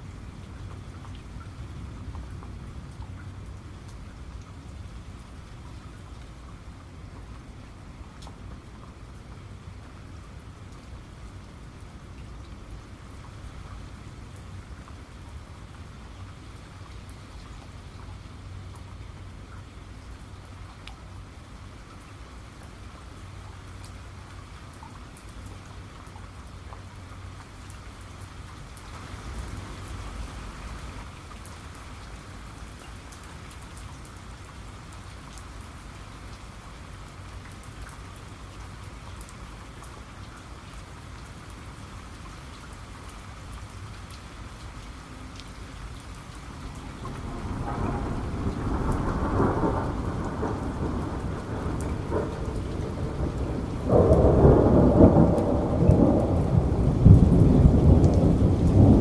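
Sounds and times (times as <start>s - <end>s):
steady rain falling: 0.0s - 59.0s
low rumble of thunder: 46.2s - 59.0s.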